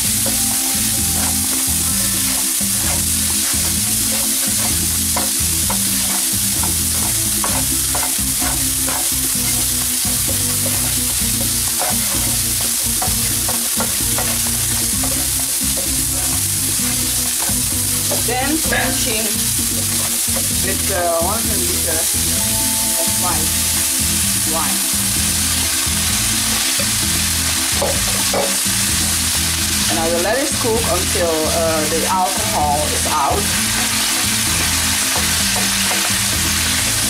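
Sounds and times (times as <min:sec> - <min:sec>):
spatula scraping and tapping pan: 0:00.0 - 0:21.5, 0:27.7 - 0:29.2, 0:32.2 - 0:37.0
onions and garlic sizzling in oil: 0:00.0 - 0:37.0.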